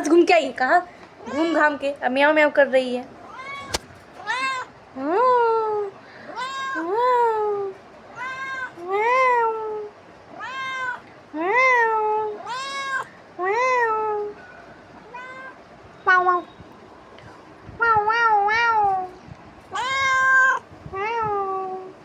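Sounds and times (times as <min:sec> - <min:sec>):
cat meowing: 0:03.2 - 0:04.7, 0:06.3 - 0:07.0, 0:08.1 - 0:14.3, 0:15.0 - 0:16.5, 0:17.8 - 0:21.9.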